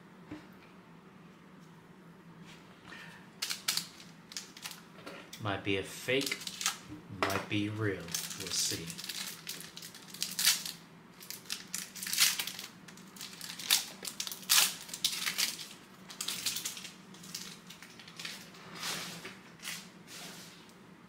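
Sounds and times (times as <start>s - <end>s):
plastic and foil packaging crinkling: 3.4s - 4.9s, 6.1s - 6.9s, 7.5s - 20.4s.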